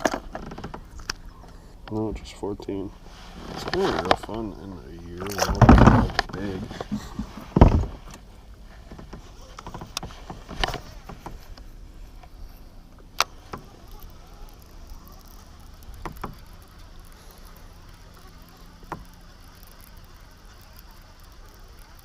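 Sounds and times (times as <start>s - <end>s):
low steady background: 0.0s - 22.0s
fishing gear knocks and clicks: 3.5s - 4.5s, 5.1s - 12.4s.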